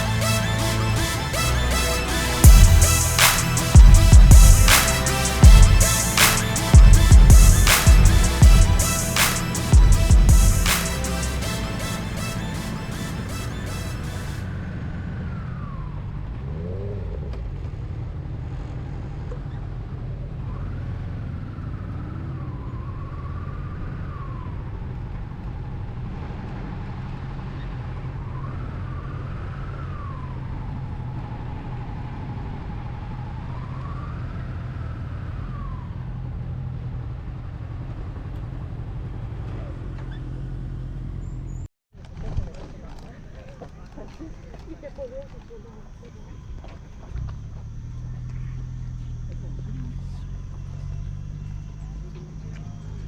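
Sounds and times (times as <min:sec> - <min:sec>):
siren wailing: 0:00.0 - 0:14.9
rumble of moving vehicles: 0:14.4 - 0:41.6.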